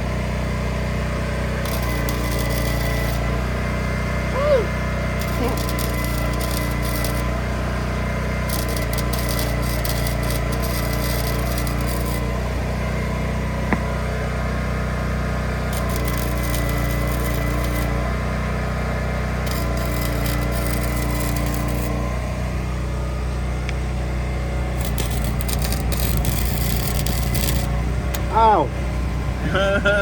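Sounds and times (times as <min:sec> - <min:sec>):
steady low hum: 0:01.1 - 0:14.0, 0:15.6 - 0:18.3, 0:19.3 - 0:30.0
arc welding crackling: 0:01.4 - 0:12.8, 0:15.6 - 0:18.4, 0:19.2 - 0:22.5, 0:24.6 - 0:28.7.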